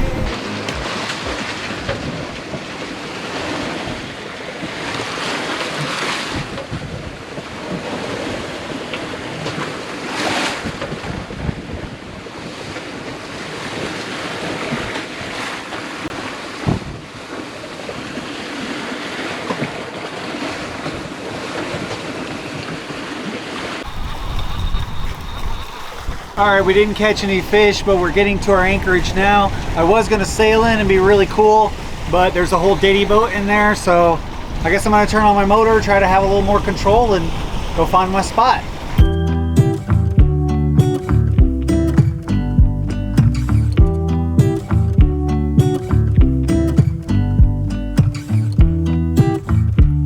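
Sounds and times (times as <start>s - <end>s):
wind buffeting microphone: 0.0s - 4.2s, 23.8s - 43.9s
waves rushing and splashing: 0.0s - 40.0s.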